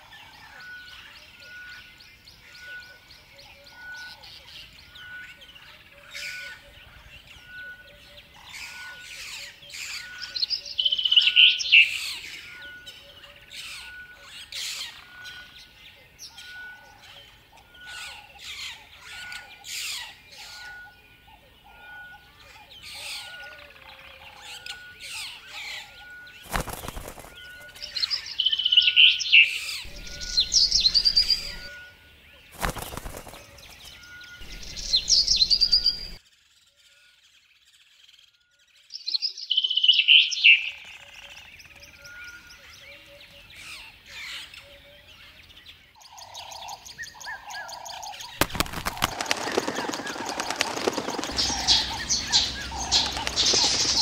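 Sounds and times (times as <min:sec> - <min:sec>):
songbirds chirping: 0:00.0 - 0:54.0
wing flaps: 0:26.4 - 0:27.9, 0:29.9 - 0:31.7, 0:32.6 - 0:36.2, 0:48.4 - 0:54.0.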